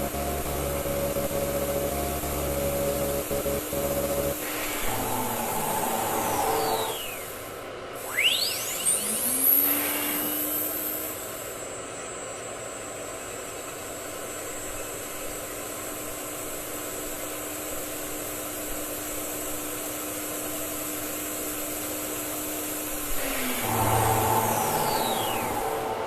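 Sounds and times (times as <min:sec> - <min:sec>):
low hum: 0:00.0 - 0:07.2, 0:23.1 - 0:26.0
cnc router whine: 0:00.0 - 0:26.0.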